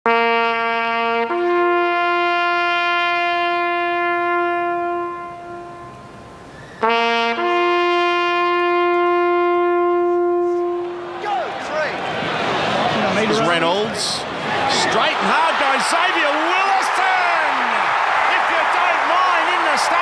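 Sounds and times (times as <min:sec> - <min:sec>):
brass horn call: 0:00.1 - 0:11.6.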